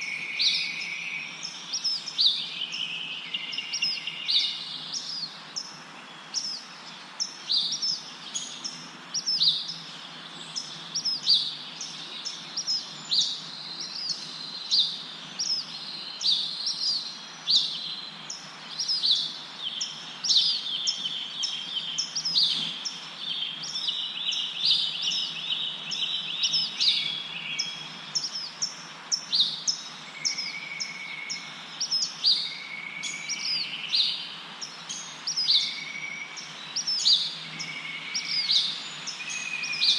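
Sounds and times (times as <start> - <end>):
birds chirping: 0.0 - 39.9
wind rustling leaves: 0.0 - 39.9
low whistled bird notes: 29.5 - 34.2, 35.0 - 39.9.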